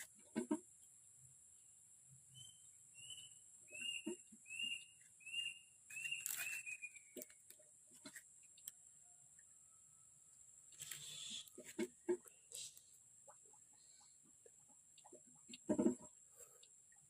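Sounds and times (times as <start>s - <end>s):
steady high-pitched hiss: 0.0s - 17.0s
bird chirping: 2.3s - 7.5s.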